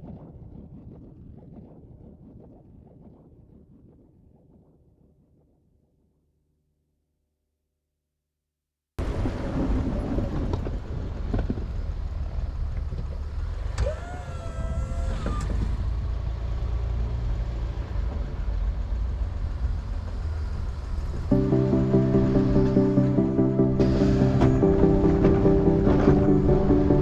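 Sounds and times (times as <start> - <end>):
truck engine rumbling: 9.1 - 27.0.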